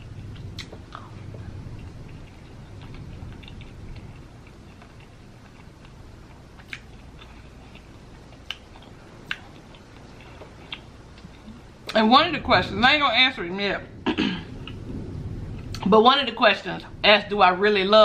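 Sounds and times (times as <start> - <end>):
person chewing: 0.1 - 12.0.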